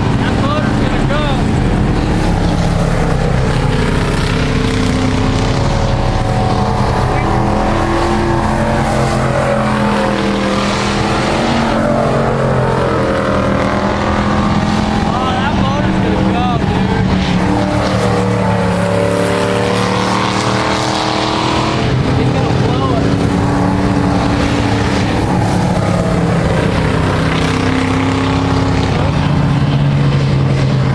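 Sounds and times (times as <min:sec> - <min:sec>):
race truck engines drone: 0:00.0 - 0:30.9.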